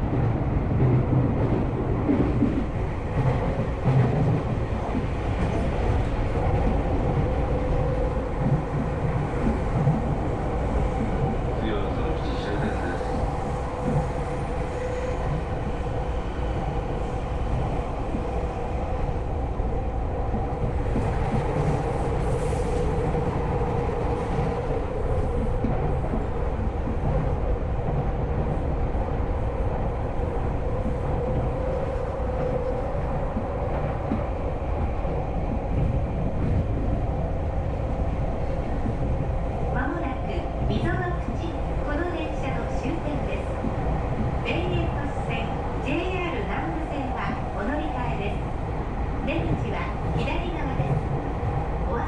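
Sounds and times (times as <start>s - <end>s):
passing train: 0.0s - 52.0s
train wheels rumbling on rail: 0.0s - 52.0s.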